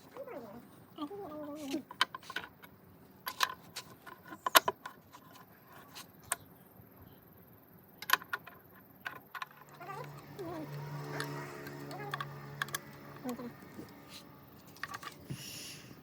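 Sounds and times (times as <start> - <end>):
steady low hum: 9.5 - 16.0.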